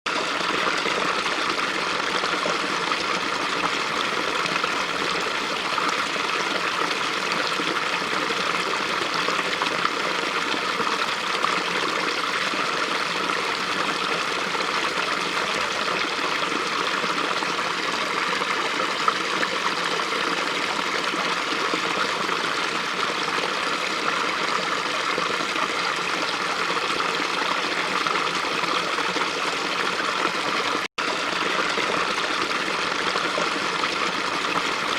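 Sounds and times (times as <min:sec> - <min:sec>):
stream rushing over rocks: 0:03.7 - 0:30.9.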